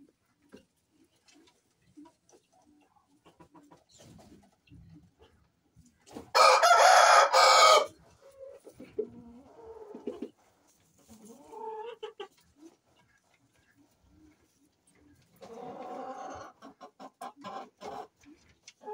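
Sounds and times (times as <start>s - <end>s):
chicken clucking: 0.0s - 18.9s
rooster crowing: 6.3s - 7.9s.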